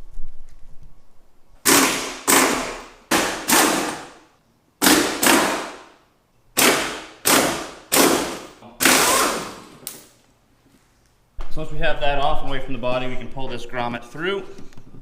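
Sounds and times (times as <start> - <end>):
impact wrench bursts: 1.6 - 4.2, 4.8 - 6.0, 6.6 - 10.2.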